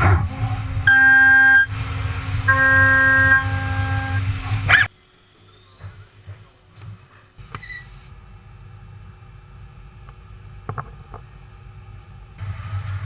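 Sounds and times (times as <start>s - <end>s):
machinery humming: 0.0s - 13.0s
sharp clicks and knocks: 10.0s - 11.3s.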